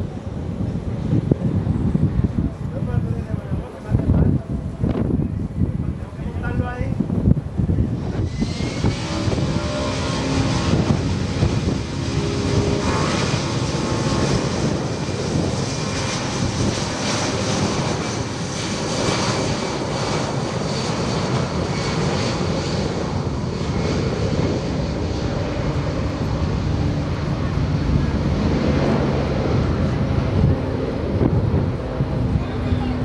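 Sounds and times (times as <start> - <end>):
airplane engines running: 0.0 - 33.0.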